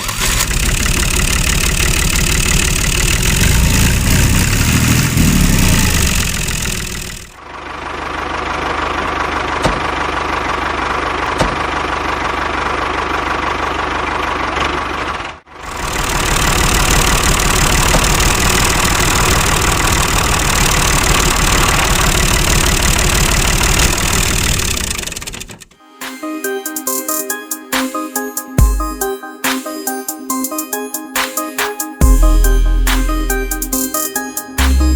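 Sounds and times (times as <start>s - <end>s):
small engine running: 0.0s - 25.6s.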